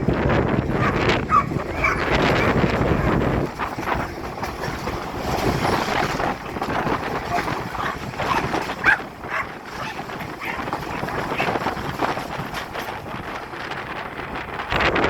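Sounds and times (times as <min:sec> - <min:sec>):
train rumbling past: 0:00.0 - 0:15.0
wind on microphone: 0:00.0 - 0:15.0
dog barking: 0:00.8 - 0:03.2, 0:07.3 - 0:11.6.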